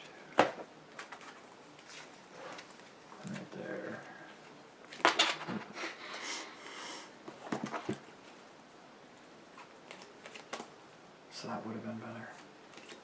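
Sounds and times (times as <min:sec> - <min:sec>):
cards sliding rustle: 0:09.5 - 0:10.7, 0:12.3 - 0:13.0.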